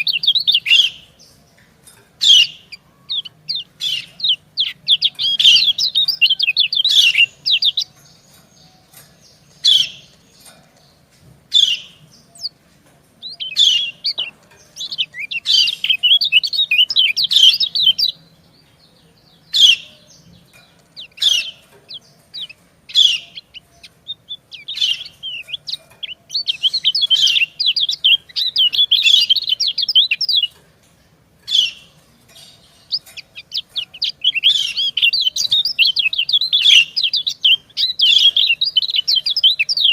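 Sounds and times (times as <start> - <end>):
bird high chirps: 0.0 - 1.5, 2.2 - 12.6, 13.2 - 30.6, 31.4 - 39.9
rapid bird twittering: 19.5 - 30.6, 31.5 - 39.9.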